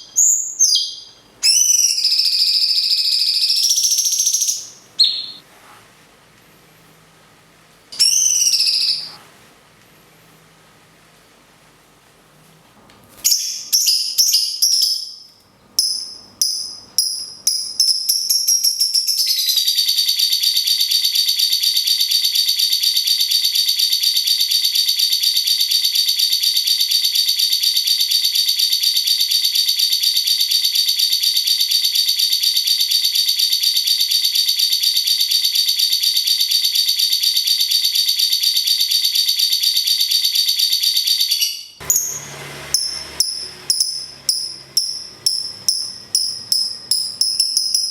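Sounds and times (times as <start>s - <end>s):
fast buzzing bird trill: 0.0s - 5.4s, 8.0s - 9.1s, 15.8s - 37.4s, 42.8s - 47.9s
songbird high calls: 0.0s - 5.4s.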